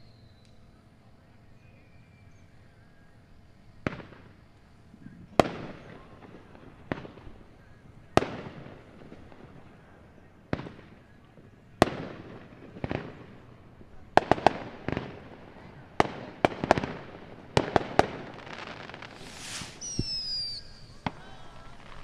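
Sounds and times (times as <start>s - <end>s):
fireworks bangs echoing: 17.6s - 22.0s.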